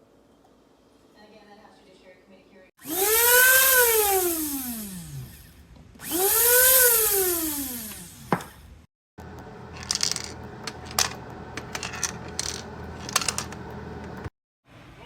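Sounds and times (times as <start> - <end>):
coffee grinder motor: 2.8 - 8.6, 9.2 - 14.3.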